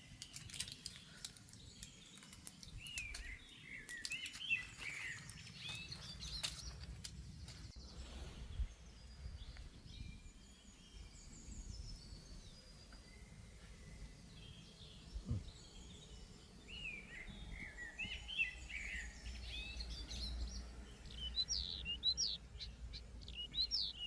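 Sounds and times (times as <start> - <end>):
birds chirping and calling: 0.0 - 8.7, 16.7 - 24.0.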